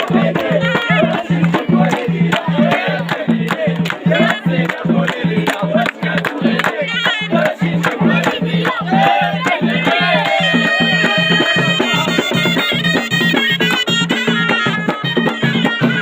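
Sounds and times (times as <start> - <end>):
sharp percussion strokes: 0.0 - 16.0
steady drum beat: 0.0 - 16.0
double-reed shawm melody: 6.1 - 16.0.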